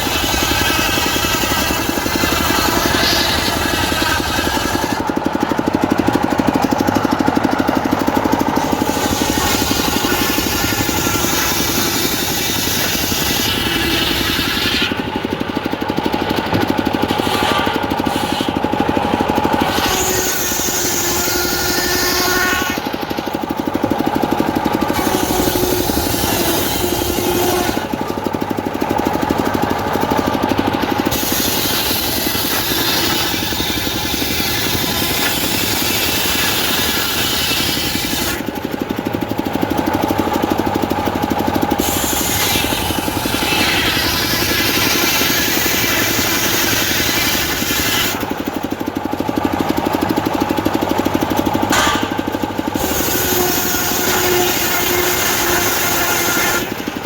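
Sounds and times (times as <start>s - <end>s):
saw blade hissing through wood: 0.0s - 5.0s, 8.6s - 15.0s, 17.1s - 18.7s, 19.5s - 23.1s, 24.8s - 28.0s, 31.0s - 38.4s, 41.8s - 48.3s, 52.8s - 56.8s
engine-driven saw clattering: 0.0s - 57.0s.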